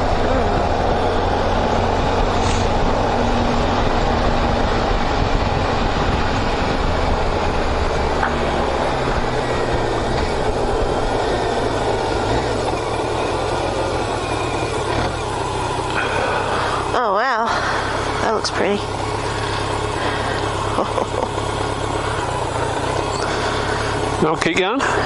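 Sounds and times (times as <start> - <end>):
wind rush over microphone: 0.0 - 12.8
motorcycle engine running: 0.0 - 25.0.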